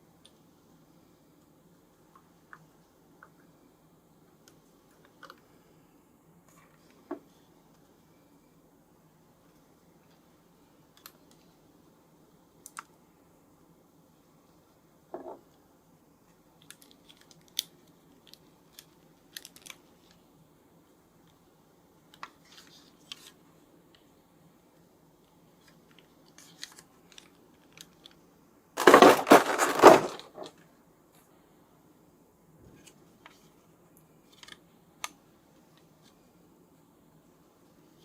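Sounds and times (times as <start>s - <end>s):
packaging clicks and rustles: 16.6s - 20.2s, 28.8s - 30.6s
packaging crinkling and tearing: 28.8s - 30.5s.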